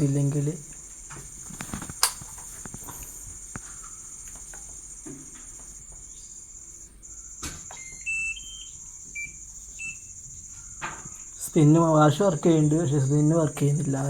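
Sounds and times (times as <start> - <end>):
crickets chirring: 0.0 - 14.0
click: 1.5 - 4.7
short electronic beeps: 7.7 - 10.3.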